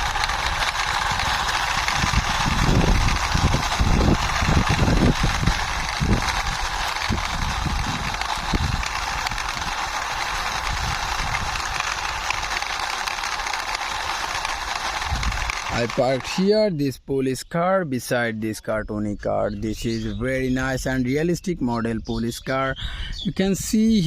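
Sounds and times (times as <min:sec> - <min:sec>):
toy car wheels rolling: 0:00.0 - 0:16.7.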